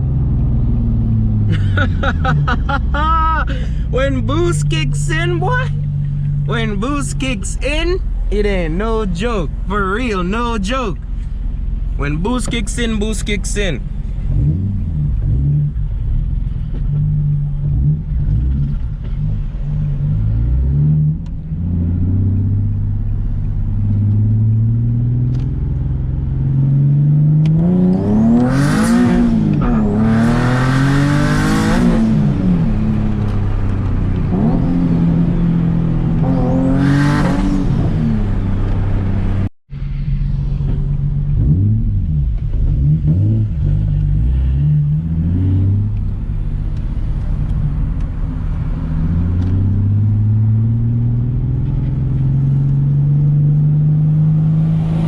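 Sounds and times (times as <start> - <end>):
car engine revving hard: 14.3 - 15.8, 26.4 - 39.5, 41.3 - 46.0, 48.6 - 55.0.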